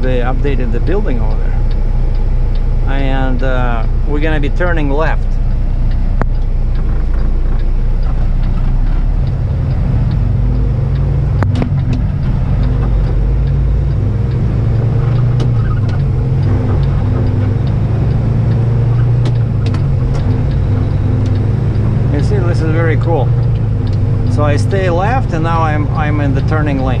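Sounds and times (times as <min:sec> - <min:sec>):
truck diesel engine running: 0:00.0 - 0:27.0.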